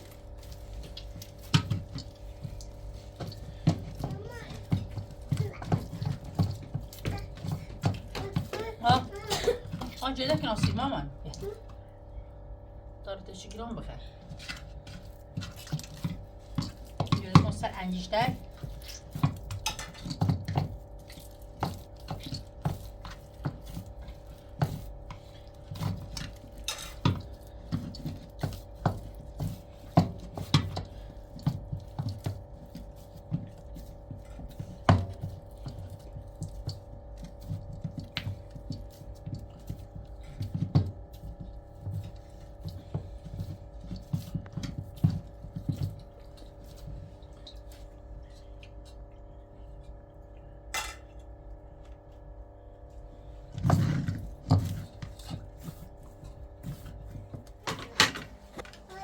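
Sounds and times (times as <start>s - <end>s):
steady low hum: 0.0s - 59.0s
objects being handled knocking: 0.4s - 11.5s.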